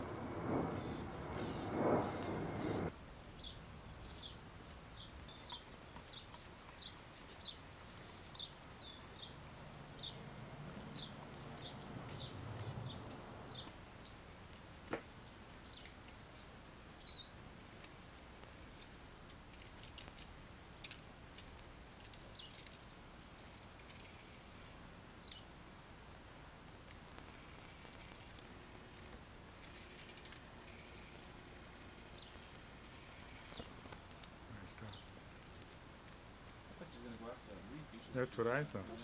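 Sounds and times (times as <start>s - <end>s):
small bird chirping: 0.1s - 14.3s, 15.1s - 21.0s, 22.0s - 25.5s, 29.6s - 37.1s.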